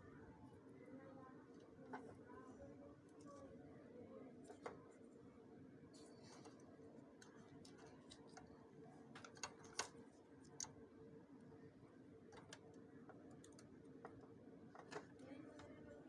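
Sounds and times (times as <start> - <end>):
small clicks and taps on plastic: 7.2 - 10.8, 12.3 - 15.8.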